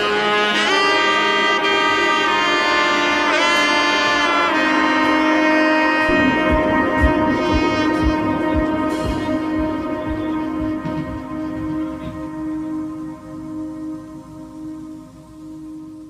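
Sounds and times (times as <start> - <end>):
brass melody: 0.0 - 16.0
low beat: 6.0 - 16.0.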